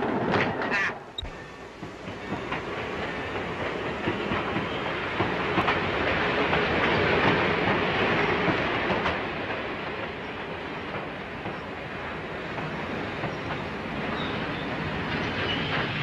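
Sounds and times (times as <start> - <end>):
steam train rumbling: 0.0 - 16.0
wheels clicking over rail joints: 0.0 - 16.0.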